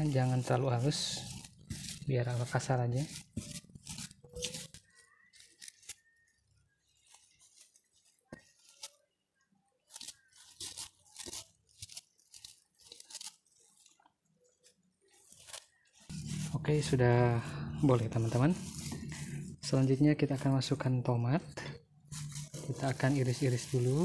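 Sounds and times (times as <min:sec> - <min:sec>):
stone pestle grinding in mortar: 0:00.1 - 0:04.8, 0:16.1 - 0:19.8.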